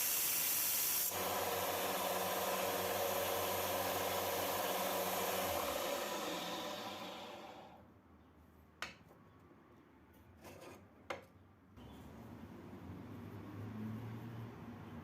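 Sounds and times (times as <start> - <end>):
machine running: 1.1 - 7.8.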